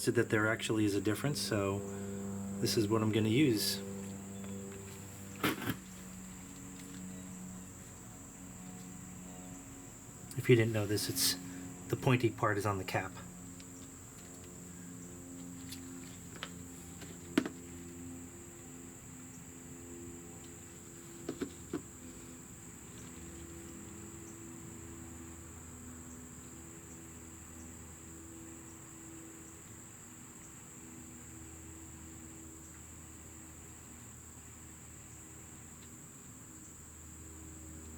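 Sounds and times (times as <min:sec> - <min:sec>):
high-pitched whine: 0:00.0 - 0:20.9.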